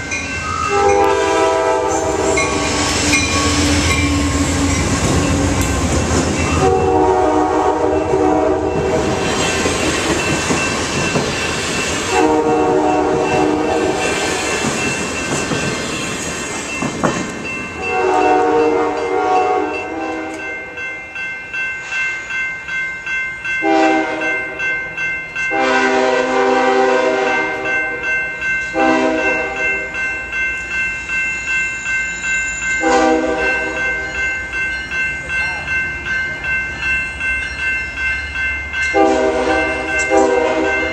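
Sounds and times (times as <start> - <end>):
train rumble and wheel clatter: 0.0 - 40.9
locomotive air horn blasts: 0.4 - 3.6, 6.5 - 9.2, 12.1 - 14.3, 17.8 - 20.5, 23.6 - 24.4, 25.5 - 27.6, 28.8 - 29.6, 32.8 - 33.8, 38.9 - 40.9
steady high-pitched ring: 1.9 - 5.6, 12.8 - 25.6, 27.4 - 40.9.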